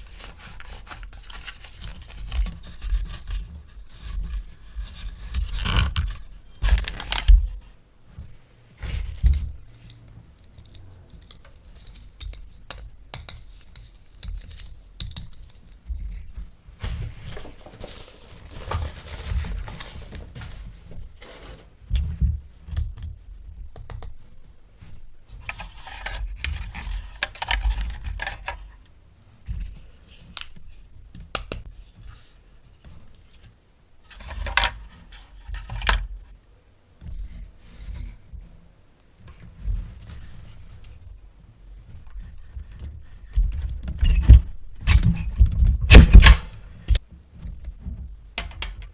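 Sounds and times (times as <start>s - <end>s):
packaging rustling: 16.9s - 21.7s.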